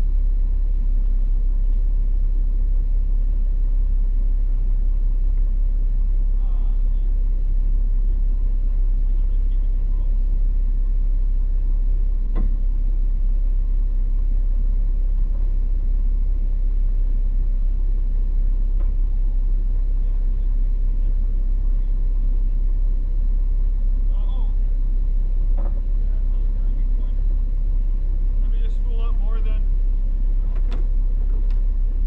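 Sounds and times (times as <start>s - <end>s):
vehicle engine rumble: 0.0s - 32.0s.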